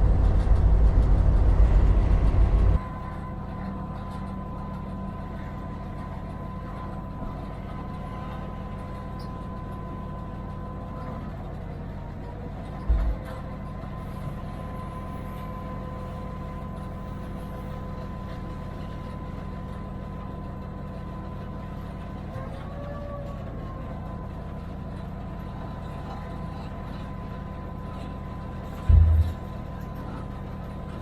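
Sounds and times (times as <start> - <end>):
diesel locomotive low rumble: 0.0 - 31.0
thin steady whine: 28.8 - 30.3
faint rising and falling tone: 28.9 - 29.6.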